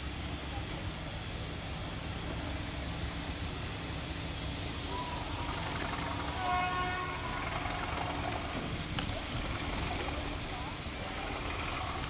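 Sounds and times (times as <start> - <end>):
locomotive rumbling: 0.0 - 12.0
train horn toot: 6.0 - 8.4.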